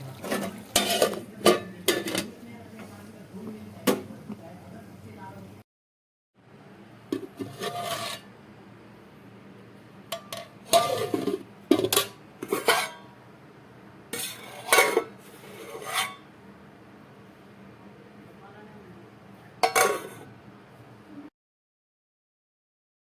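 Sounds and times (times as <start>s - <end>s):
metal spoon scraping a pan: 0.0s - 2.3s, 7.2s - 8.3s, 10.2s - 13.1s, 14.2s - 16.3s, 19.6s - 20.3s.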